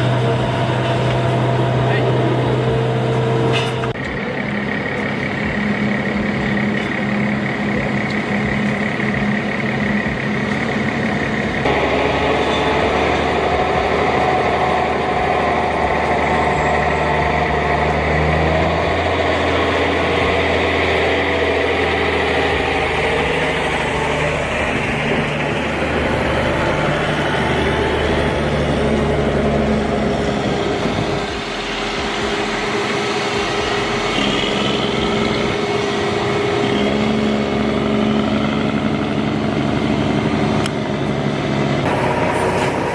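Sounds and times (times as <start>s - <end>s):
heavy diesel engines running: 0.0s - 42.9s.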